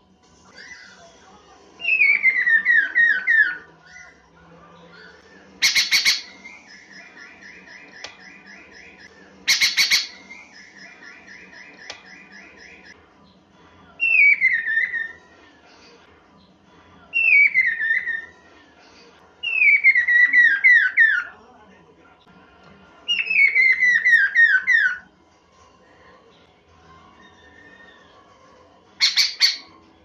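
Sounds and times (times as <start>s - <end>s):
bird trill: 5.0s - 13.0s, 29.0s - 29.8s
harsh rasping bird call: 5.6s - 6.4s, 9.5s - 10.2s
bird singing whistled notes: 14.0s - 15.2s, 19.4s - 21.2s.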